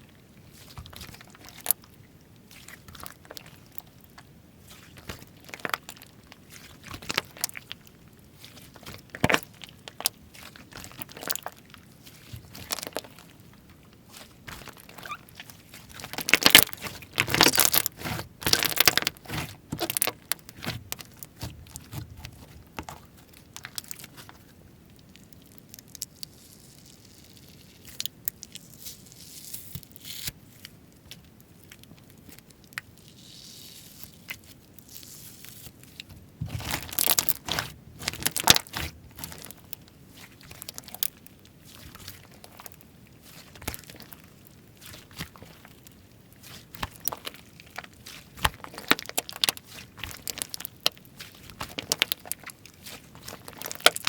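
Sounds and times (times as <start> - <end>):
slime sticky clicks and squishing: 0.6 - 1.9, 2.5 - 13.3, 14.1 - 24.4, 34.2 - 54.0.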